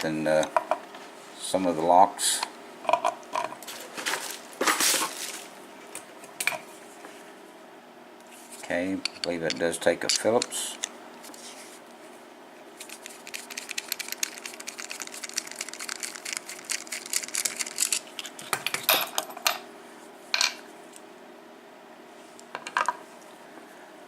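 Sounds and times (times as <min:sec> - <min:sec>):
small metal parts clinking: 0:12.8 - 0:18.3.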